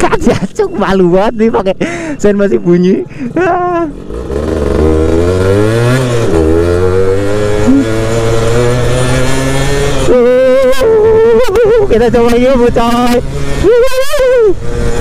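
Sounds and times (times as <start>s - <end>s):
two-stroke motorcycle engine revving: 3.4s - 15.0s.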